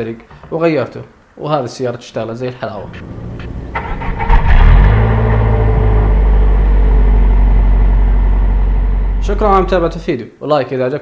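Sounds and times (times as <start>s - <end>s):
car engine cranking and idling: 2.7s - 10.1s.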